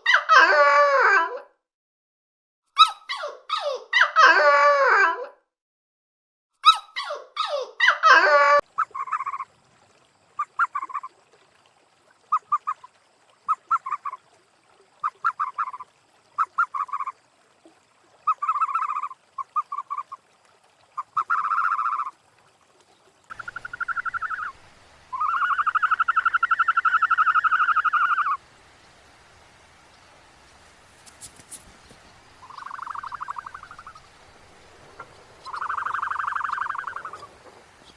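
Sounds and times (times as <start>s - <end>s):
short pulsed animal calls: 8.8s - 9.5s, 13.5s - 14.2s, 15.0s - 17.2s, 18.3s - 20.2s, 21.0s - 22.2s, 23.3s - 28.4s, 30.4s - 37.9s
long buzzy animal calls: 23.3s - 28.4s, 30.4s - 37.9s.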